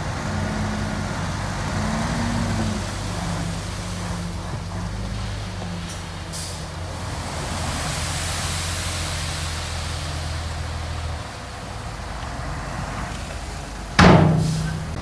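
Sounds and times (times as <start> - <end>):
heavy diesel engine running: 0.0 - 15.0
broad hiss: 5.5 - 11.4, 13.2 - 15.0.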